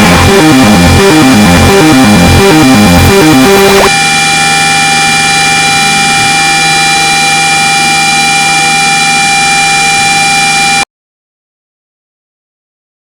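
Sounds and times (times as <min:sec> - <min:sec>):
loud electronic drone: 0:00.0 - 0:10.8.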